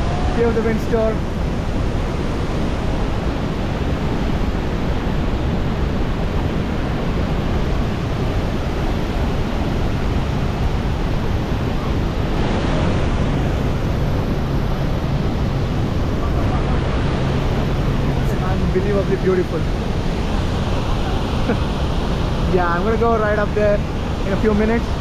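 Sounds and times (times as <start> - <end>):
waterfall roaring: 0.0 - 25.0
wind on microphone: 0.0 - 25.0.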